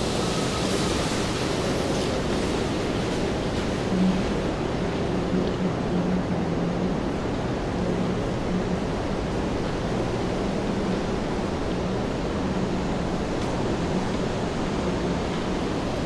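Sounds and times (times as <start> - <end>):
rain on a street: 0.0 - 16.0.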